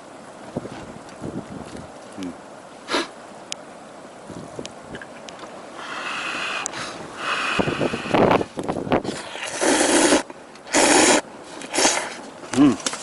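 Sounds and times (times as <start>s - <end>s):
person slurping noodles: 9.1s - 12.2s.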